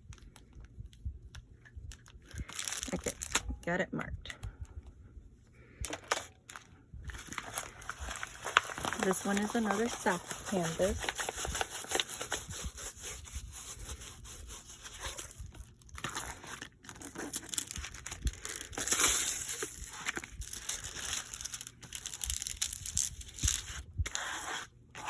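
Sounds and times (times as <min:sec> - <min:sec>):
packaging crinkling: 0:01.9 - 0:03.5, 0:05.8 - 0:23.8.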